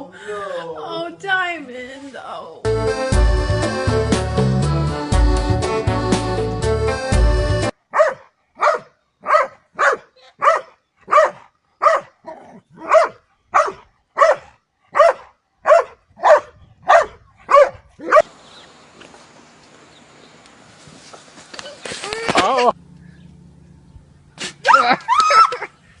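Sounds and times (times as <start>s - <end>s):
dog barking: 7.9s - 18.3s.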